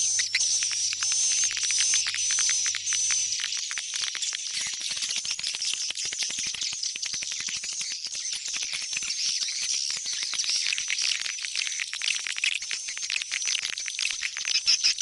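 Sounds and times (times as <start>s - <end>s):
swiftlets chirping and twittering: 0.0s - 10.8s, 14.4s - 15.0s.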